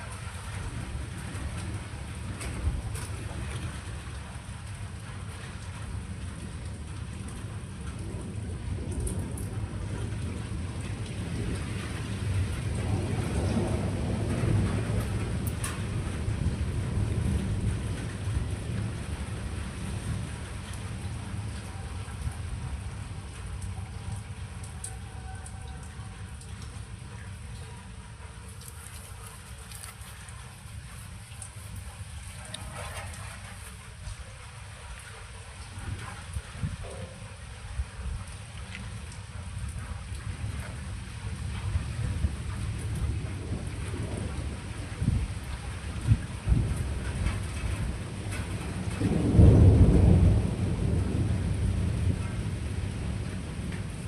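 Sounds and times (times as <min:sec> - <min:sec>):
rain falling: 0:00.0 - 0:54.0
sharp ticks of raindrops: 0:00.0 - 0:54.0
thunder rumbling: 0:00.0 - 0:54.0.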